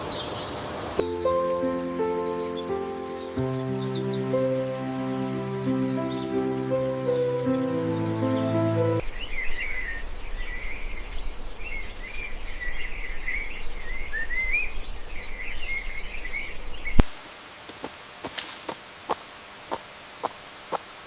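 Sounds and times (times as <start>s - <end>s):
songbirds chirping: 0.0s - 17.2s
soft music with sustained notes: 1.0s - 9.1s.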